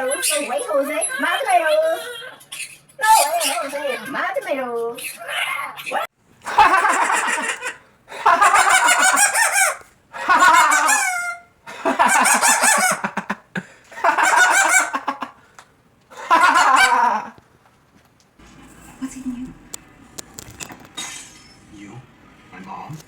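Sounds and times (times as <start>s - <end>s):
parrot squawking: 0.0s - 13.2s, 14.0s - 15.1s.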